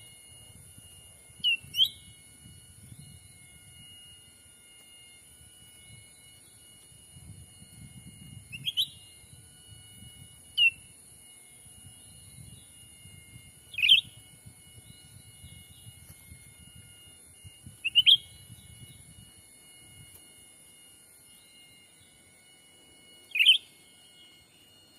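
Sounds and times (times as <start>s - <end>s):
high-pitched drone: 0.0s - 24.9s
sharp bird chirps: 1.4s - 2.1s, 8.5s - 9.1s, 13.7s - 14.2s, 17.8s - 19.1s, 23.2s - 24.4s.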